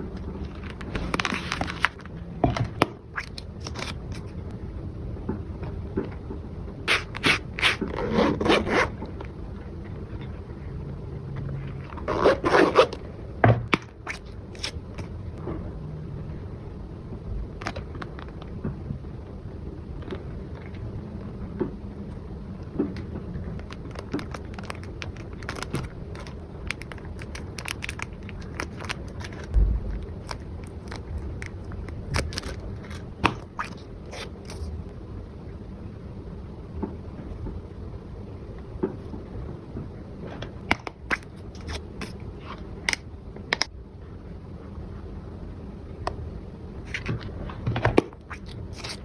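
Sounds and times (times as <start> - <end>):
packaging being opened: 0.5 - 2.1, 3.2 - 4.3, 23.6 - 29.5, 30.1 - 34.7
low thump: 29.5 - 30.1.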